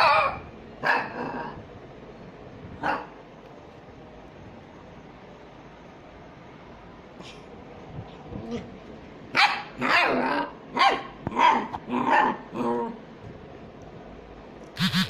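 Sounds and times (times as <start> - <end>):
small dog barking: 0.0 - 1.3, 2.8 - 3.2, 9.3 - 12.6.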